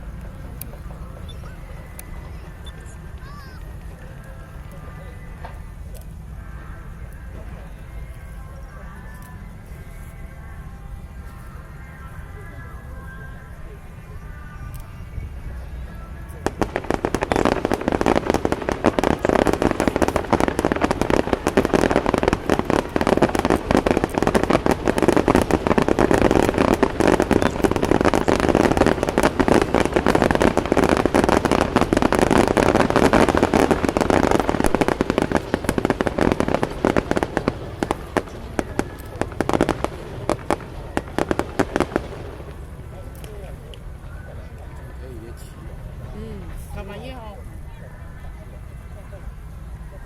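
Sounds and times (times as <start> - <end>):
fireworks crackling: 0.0 - 50.0.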